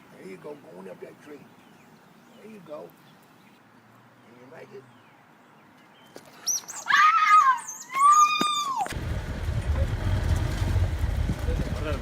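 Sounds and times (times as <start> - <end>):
high-pitched wailing cry: 6.8 - 8.9
wind buffeting microphone: 8.9 - 12.0.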